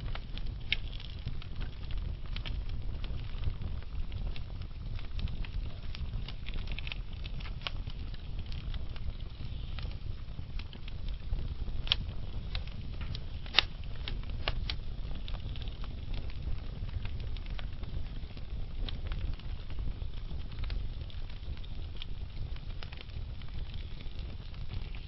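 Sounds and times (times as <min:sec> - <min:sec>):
log fire crackling: 0:00.0 - 0:25.0.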